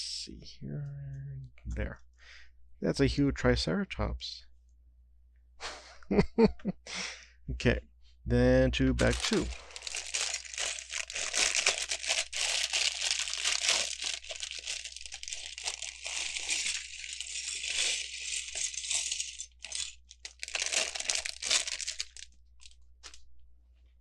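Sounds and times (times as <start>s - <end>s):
plastic bag crinkling: 9.0s - 23.2s.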